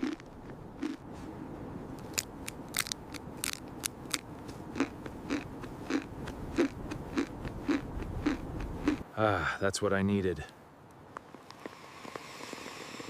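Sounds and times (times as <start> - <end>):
person chewing crunchy food: 0.0 - 1.0, 2.0 - 9.0.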